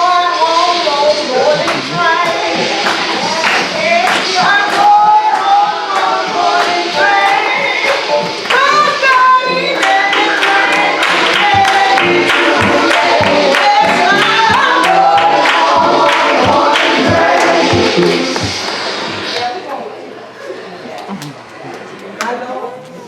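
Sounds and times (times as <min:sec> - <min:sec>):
gospel choir singing: 0:00.0 - 0:19.4
percussion beat: 0:01.5 - 0:19.3.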